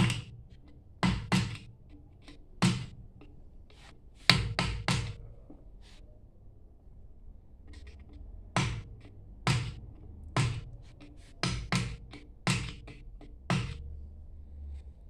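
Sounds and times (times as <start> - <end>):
hammer striking pump: 0.0 - 5.6, 7.7 - 14.0
light hammer taps: 0.0 - 5.7, 7.7 - 14.0.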